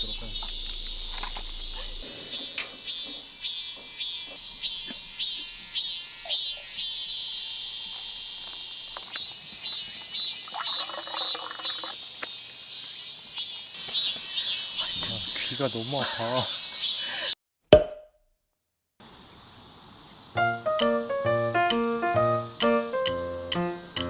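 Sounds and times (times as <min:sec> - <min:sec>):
high-pitched insect chorus: 0:00.0 - 0:17.4
short sharp insect chirps: 0:00.0 - 0:17.4.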